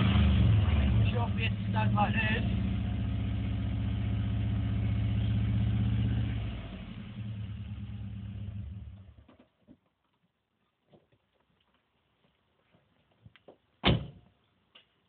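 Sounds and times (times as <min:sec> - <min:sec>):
car engine revving and idling: 0:00.0 - 0:09.2.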